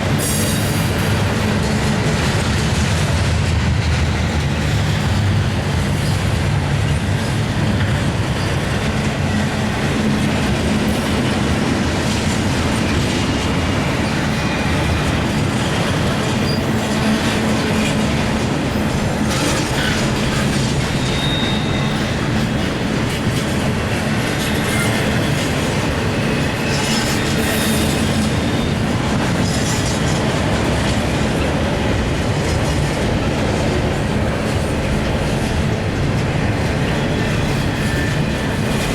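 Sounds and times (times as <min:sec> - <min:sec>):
freight train wheels rumbling: 0:00.0 - 0:38.9
high wheel squeal: 0:19.4 - 0:22.6, 0:26.2 - 0:29.8.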